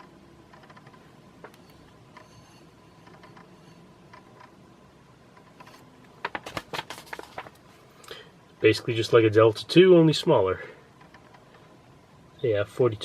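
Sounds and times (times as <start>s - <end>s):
crackling clicks of paper: 5.6s - 7.7s.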